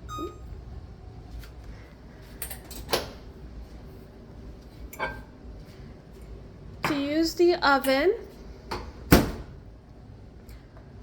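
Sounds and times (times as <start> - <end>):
electronic button beep: 0.0 - 0.5.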